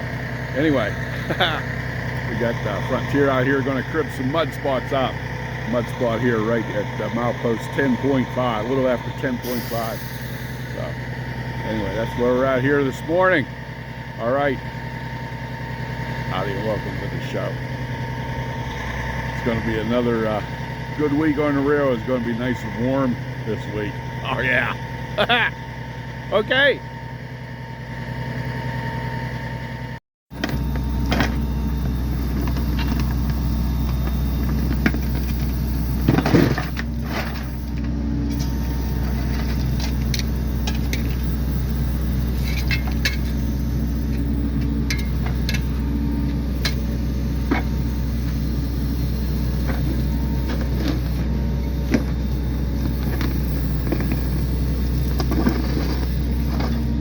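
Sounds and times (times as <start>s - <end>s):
engine running steadily: 0.0s - 57.0s
knocks and clanks: 34.0s - 37.5s.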